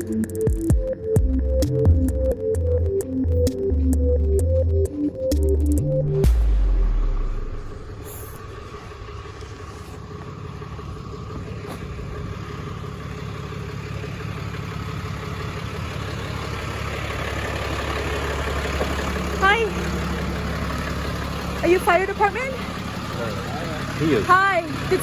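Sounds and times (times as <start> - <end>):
vehicle engine idling: 0.0 - 25.0
loud low rumble: 5.6 - 16.8.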